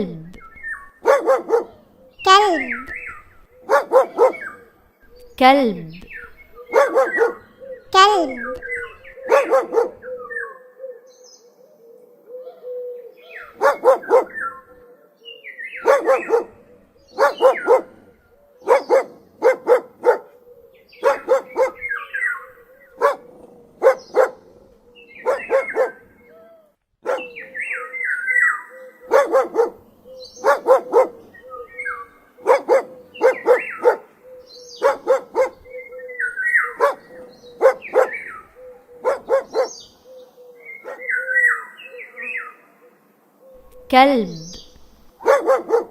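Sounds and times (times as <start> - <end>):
dog barking: 0.9 - 3.0, 3.6 - 4.6, 6.6 - 10.1, 13.5 - 14.5, 15.8 - 20.4, 21.0 - 22.3, 22.9 - 26.3, 27.0 - 27.4, 29.0 - 34.2, 34.8 - 35.7, 36.6 - 39.8, 40.8 - 41.2, 45.1 - 45.9.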